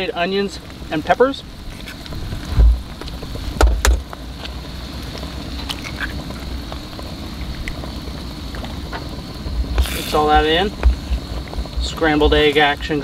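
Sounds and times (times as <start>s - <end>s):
food frying in skillet: 0.0s - 13.0s
eggs cracking: 5.6s - 7.9s.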